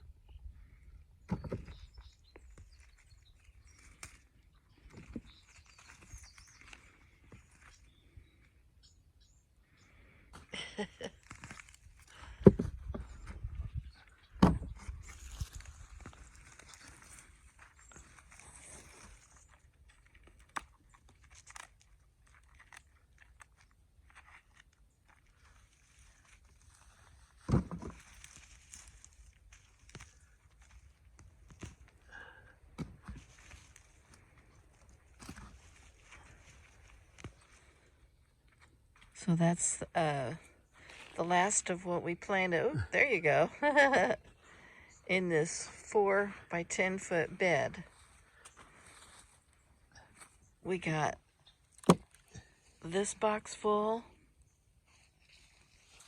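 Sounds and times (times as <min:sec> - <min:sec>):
digging in garden soil: 0:00.0 - 0:08.8, 0:09.6 - 0:56.0
faint bird chirps: 0:01.2 - 0:10.0.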